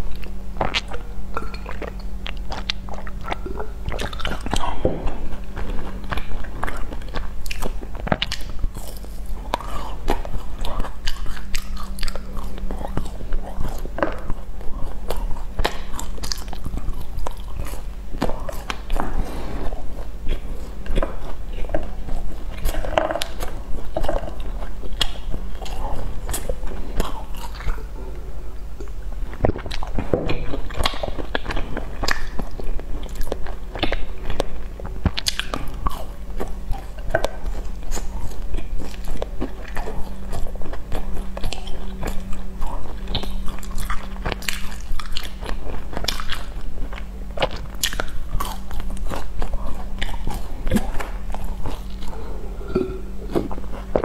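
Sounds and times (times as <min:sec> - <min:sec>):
biting and chewing pastries: 0:00.0 - 0:54.0
steady low hum: 0:00.0 - 0:54.0
mouth clicks and smacks: 0:28.8 - 0:32.4, 0:33.1 - 0:35.8.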